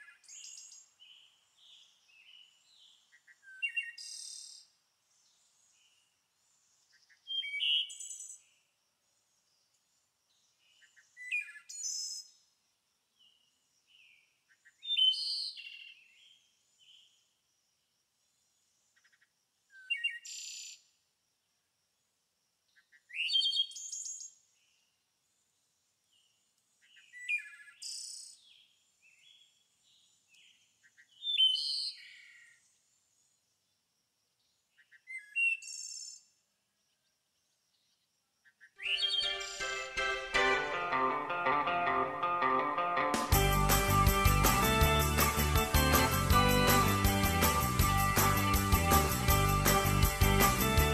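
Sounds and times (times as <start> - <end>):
songbird chirps and trills: 36.9 - 40.4.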